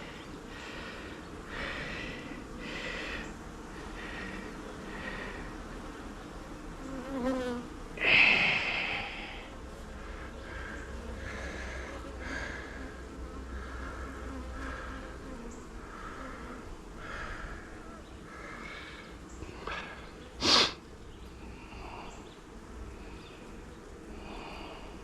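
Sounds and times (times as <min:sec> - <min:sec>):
honeybees buzzing: 0:00.0 - 0:25.0.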